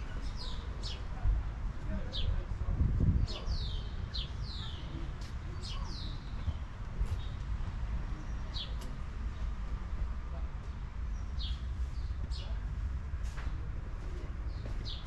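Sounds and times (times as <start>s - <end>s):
small birds chirping: 0.1s - 1.2s, 3.1s - 9.6s, 10.6s - 12.7s, 14.5s - 15.0s.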